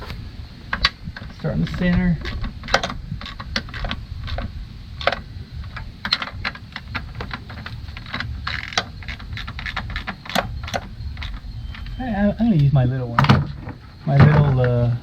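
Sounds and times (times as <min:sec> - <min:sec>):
low background rumble: 0:00.0 - 0:15.0
socket ratchet clicking: 0:00.8 - 0:12.0.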